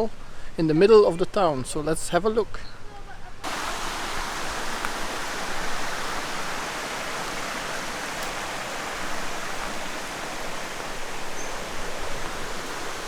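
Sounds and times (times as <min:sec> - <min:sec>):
river water rushing over rocks: 0:03.5 - 0:13.0.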